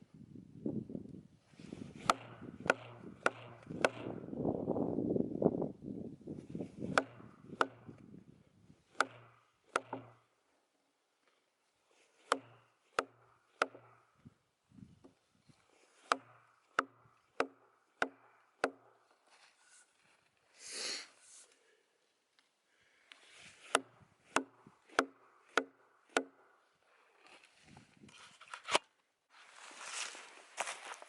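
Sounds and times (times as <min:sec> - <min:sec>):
sharp blows splitting a log: 0:01.7 - 0:04.5, 0:06.5 - 0:08.0, 0:08.9 - 0:10.3, 0:11.9 - 0:14.1, 0:15.7 - 0:19.0, 0:23.3 - 0:26.5.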